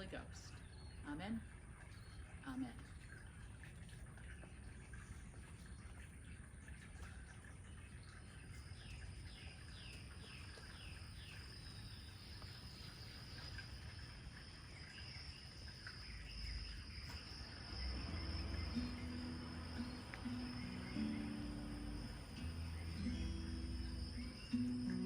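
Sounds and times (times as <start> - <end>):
high insect drone: 9.8 - 25.0
bird singing slurred notes: 16.1 - 25.0
music: 17.9 - 25.0.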